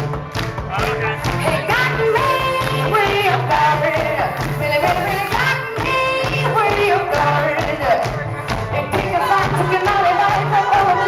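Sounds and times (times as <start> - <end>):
live band playing: 0.0 - 11.0
repeating bass line: 0.0 - 11.0.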